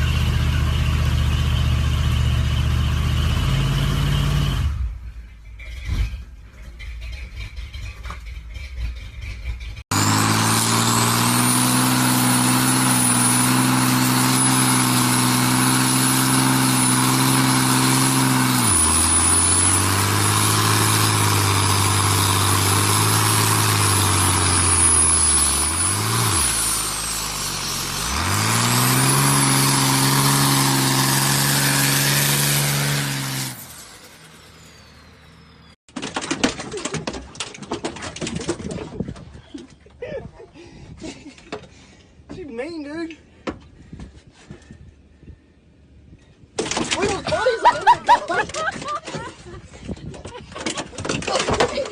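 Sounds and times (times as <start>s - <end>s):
truck engine revving and idling: 0.0s - 35.8s.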